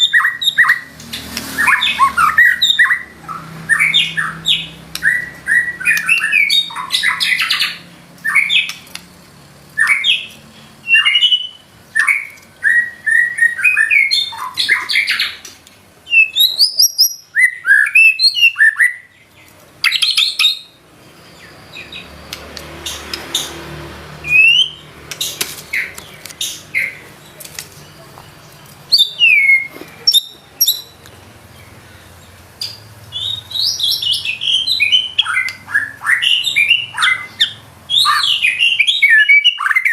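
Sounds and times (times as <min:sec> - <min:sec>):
bird singing whistled phrases: 0:00.0 - 0:00.9, 0:01.6 - 0:08.8, 0:09.8 - 0:15.4, 0:16.1 - 0:19.2, 0:24.2 - 0:24.9, 0:28.9 - 0:31.0, 0:33.1 - 0:39.9.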